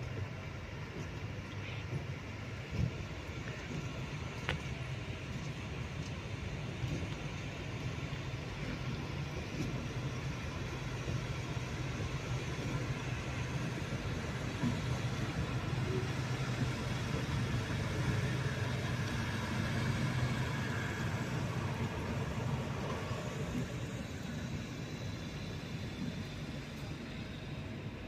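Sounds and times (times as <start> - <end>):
train humming: 0.0 - 28.0.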